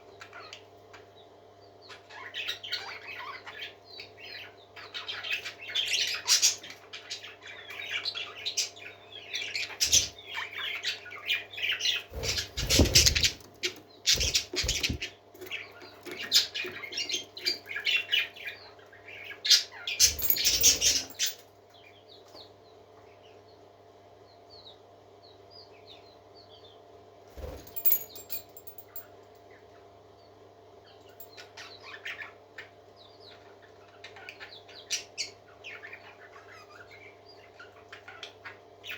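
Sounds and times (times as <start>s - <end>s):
parakeets chirping and chattering: 1.9s - 21.4s, 27.4s - 29.0s, 31.3s - 38.9s.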